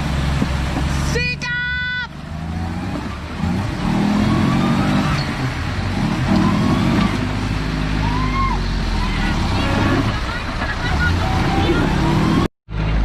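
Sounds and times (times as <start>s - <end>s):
engine revving hard: 2.2s - 12.5s.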